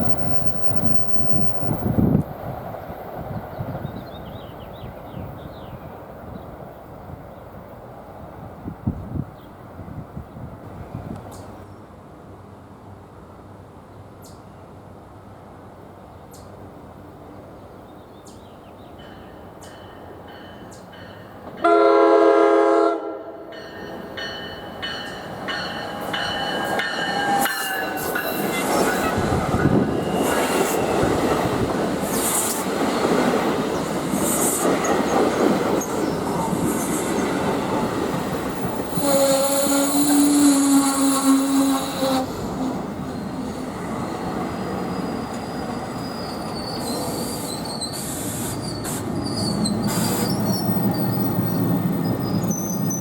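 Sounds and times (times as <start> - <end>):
train wheels squealing: 0.0 - 1.9, 23.8 - 32.7, 33.6 - 53.0
train horn blast: 21.6 - 23.5, 38.8 - 42.8.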